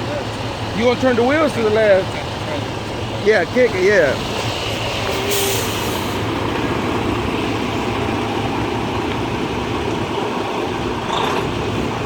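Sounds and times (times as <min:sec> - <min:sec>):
truck diesel engine running: 0:00.0 - 0:12.0
rushing hiss: 0:04.5 - 0:06.4.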